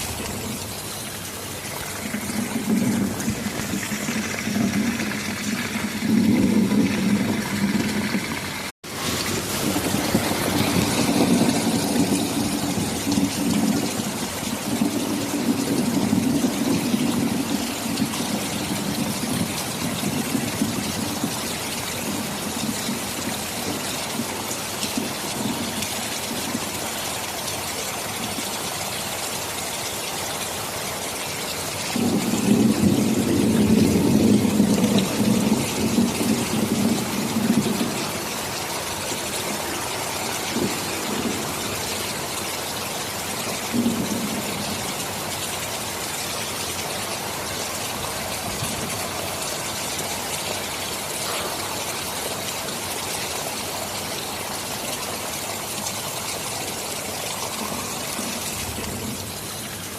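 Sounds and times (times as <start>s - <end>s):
low thunder rumble: 0.0s - 26.6s, 32.0s - 45.5s
heavy rain: 0.0s - 59.9s.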